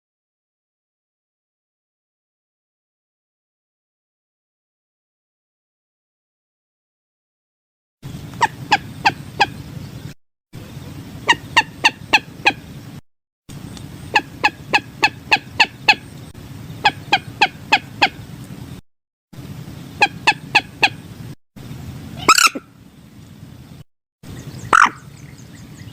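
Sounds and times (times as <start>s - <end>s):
moorhen calling: 8.1s - 13.0s, 13.6s - 18.8s, 19.7s - 21.3s, 22.2s - 22.8s, 24.3s - 25.9s.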